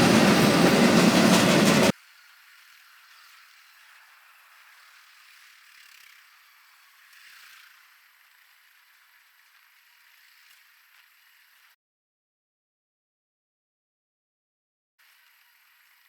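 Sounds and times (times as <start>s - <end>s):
train cars rattling past: 0.0s - 1.9s.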